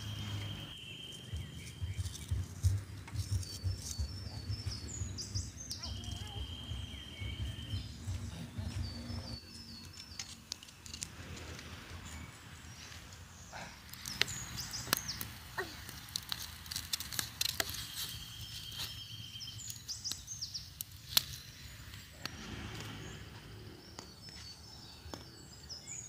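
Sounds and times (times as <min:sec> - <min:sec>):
birds calling: 0:00.0 - 0:26.0
wood fire crackling and popping: 0:01.5 - 0:22.9.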